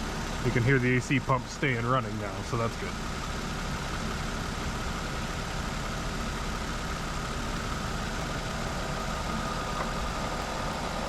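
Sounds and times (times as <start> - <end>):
car engine idling: 0.0 - 11.0
faint steady whine: 6.1 - 11.0.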